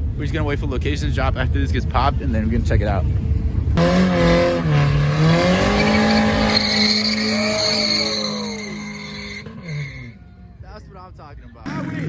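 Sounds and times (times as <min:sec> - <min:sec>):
car engine at high revs: 0:03.8 - 0:10.2
tyres squealing on pavement: 0:03.8 - 0:10.2.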